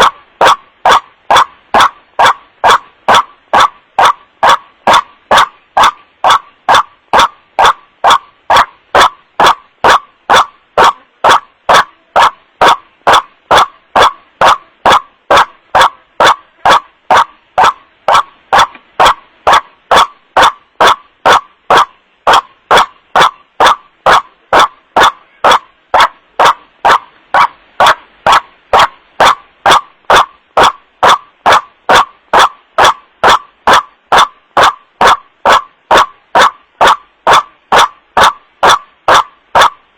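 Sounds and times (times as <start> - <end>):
distorted bird call: 0.0 - 39.9.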